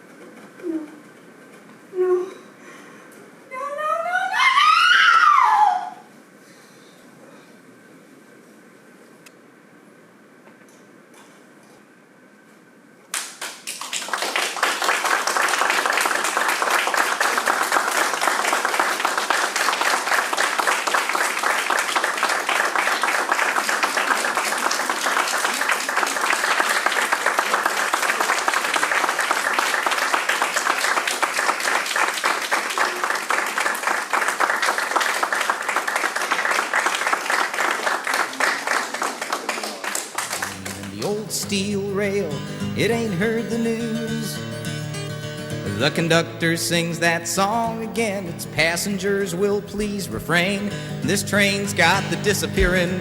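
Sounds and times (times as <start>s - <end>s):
audience applauding: 13.1s - 43.6s, 47.4s - 53.0s.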